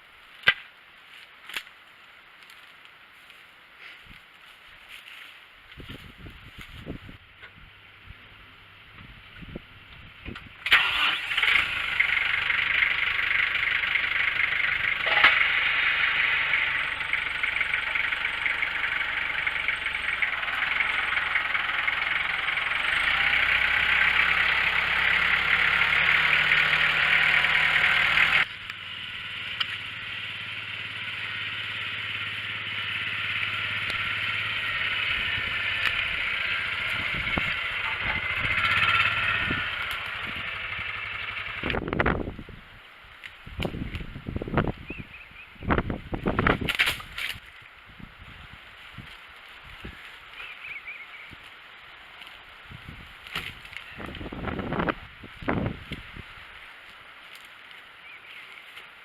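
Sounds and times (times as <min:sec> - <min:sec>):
small engine running: 0:10.6 - 0:42.1.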